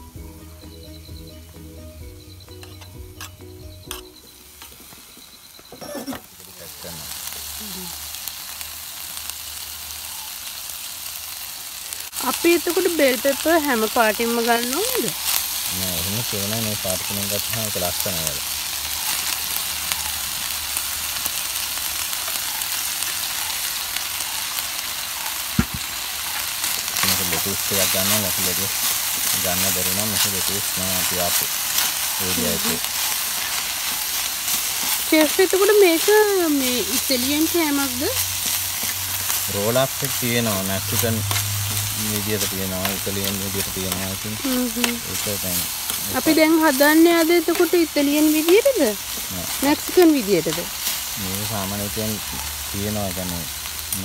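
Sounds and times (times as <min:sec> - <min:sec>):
meat and peppers sizzling: 0:00.0 - 0:54.0
thump: 0:25.6 - 0:25.9.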